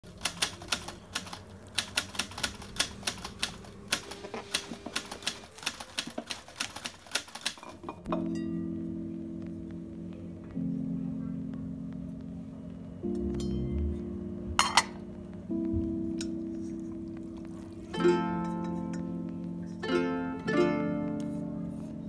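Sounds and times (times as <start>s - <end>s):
sharp irregular clicks: 0.1s - 7.6s
music with soft held notes: 7.9s - 22.0s.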